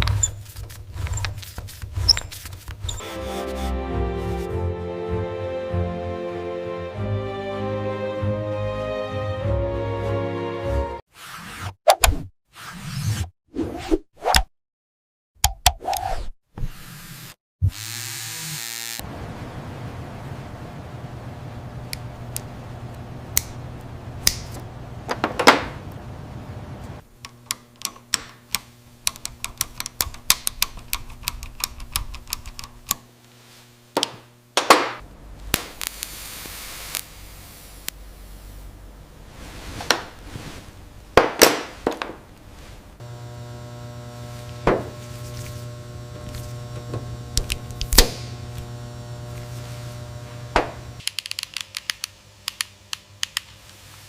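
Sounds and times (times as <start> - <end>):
small parts clicking and knocking: 27.2 - 33.0, 51.0 - 53.6
low hum: 42.3 - 51.0.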